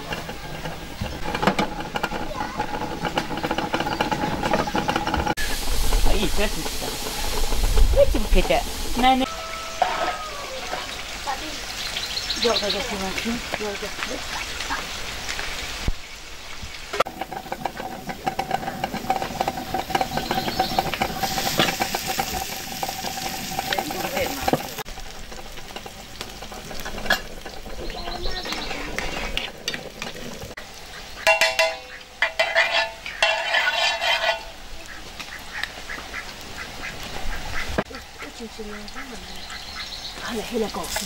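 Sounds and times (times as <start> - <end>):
utensil scraping a pan: 0.0 - 11.0, 17.0 - 30.6, 31.2 - 34.6
food sizzling in a pan: 5.3 - 41.0.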